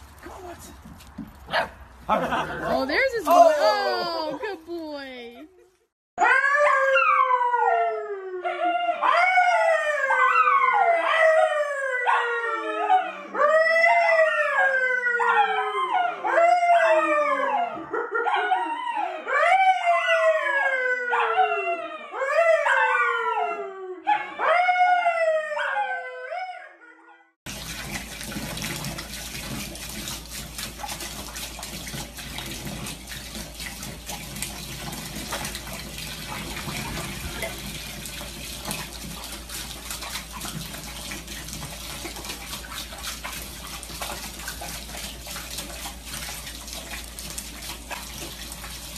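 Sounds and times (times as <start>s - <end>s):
man howling: 2.3s - 4.4s
dog howling: 6.2s - 27.0s
water running into bathtub: 27.4s - 48.9s.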